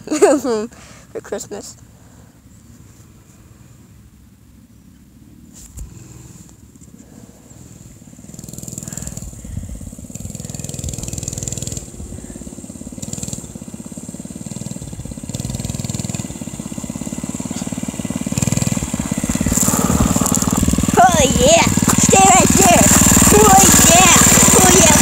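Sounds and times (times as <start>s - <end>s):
mini bike engine revving: 5.8s - 25.0s.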